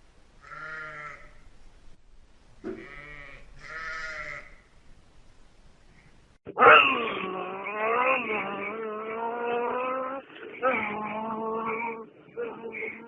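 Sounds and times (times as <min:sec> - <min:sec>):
farm animal bleating: 0:00.4 - 0:01.4, 0:02.7 - 0:04.7.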